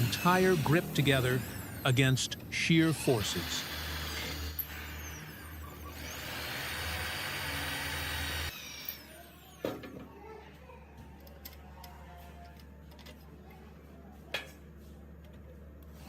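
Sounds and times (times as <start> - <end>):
power drill boring into wood: 0.0 - 2.2, 2.8 - 9.4.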